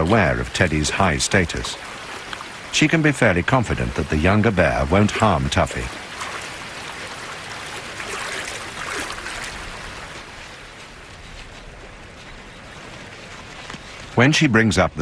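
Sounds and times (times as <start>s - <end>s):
creek water flowing and splashing: 0.0s - 15.0s.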